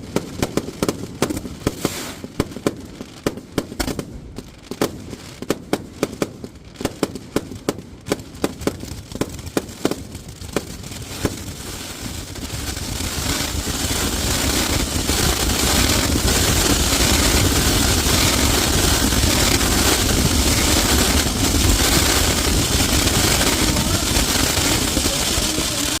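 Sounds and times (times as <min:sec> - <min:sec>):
dense rush of fireworks noise: 0:00.0 - 0:26.0
fireworks bangs: 0:00.0 - 0:26.0.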